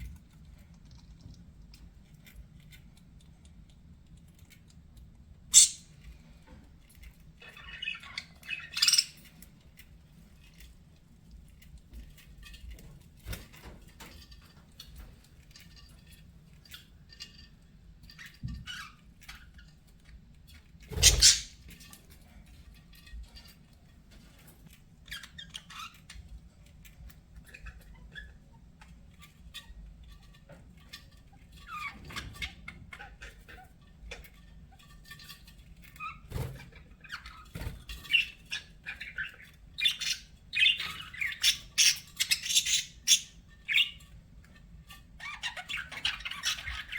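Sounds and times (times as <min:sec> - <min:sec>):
budgerigars chirping and chattering: 0:05.5 - 0:06.1, 0:07.4 - 0:09.8, 0:20.9 - 0:21.6, 0:25.1 - 0:26.2, 0:35.9 - 0:44.1, 0:45.2 - 0:46.9.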